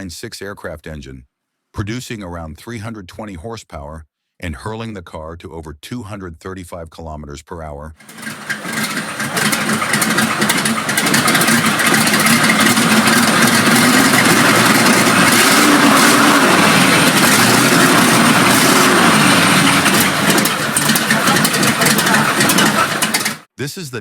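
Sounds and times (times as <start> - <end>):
aircraft engine running loud: 8.0 - 23.4.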